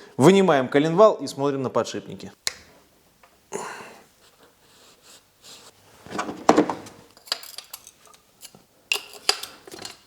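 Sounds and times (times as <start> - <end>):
metal tools clinking: 7.2 - 8.2.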